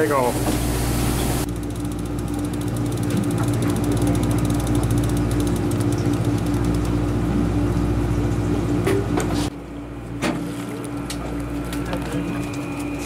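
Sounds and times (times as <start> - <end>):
boat engine droning: 1.2 - 13.0
sharp clicks and knocks: 1.7 - 7.0.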